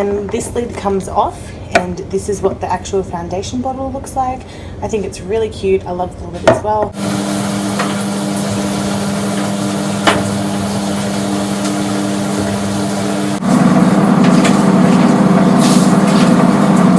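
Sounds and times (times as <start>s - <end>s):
machine humming: 7.0s - 16.9s.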